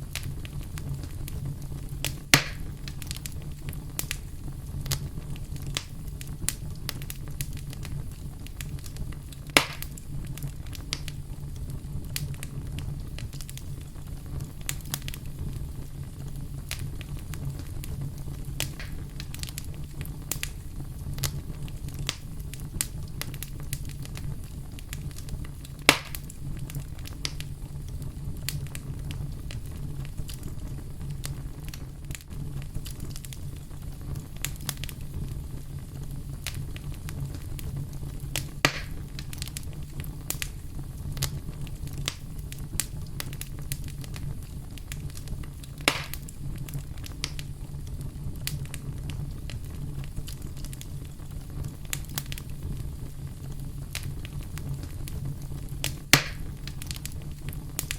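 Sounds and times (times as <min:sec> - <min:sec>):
campfire crackling: 0:00.0 - 0:57.9
loud fire pops: 0:00.0 - 0:57.9
steady low rumble: 0:00.0 - 0:57.9.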